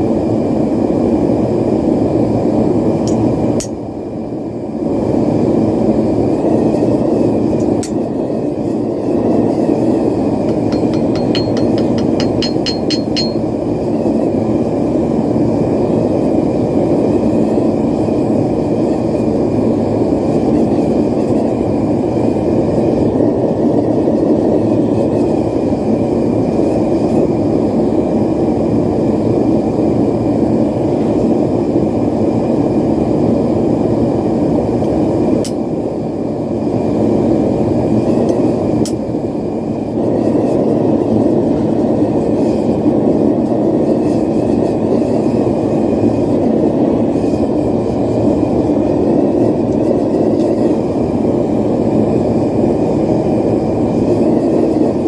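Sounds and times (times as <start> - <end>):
forge burner roaring: 0.0 - 55.0
light metallic taps: 10.5 - 13.4.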